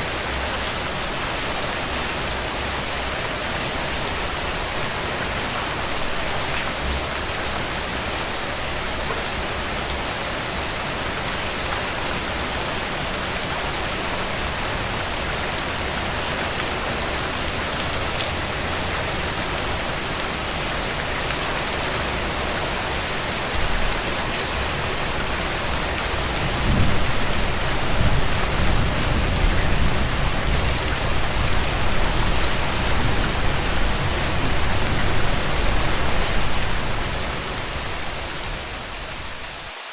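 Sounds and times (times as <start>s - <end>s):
rain pattering on a tent: 0.0s - 39.9s.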